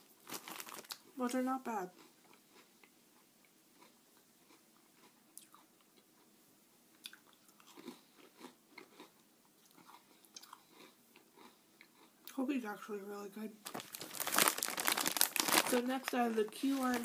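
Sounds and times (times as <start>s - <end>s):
person chewing a cookie: 0.3s - 1.1s, 1.9s - 12.4s.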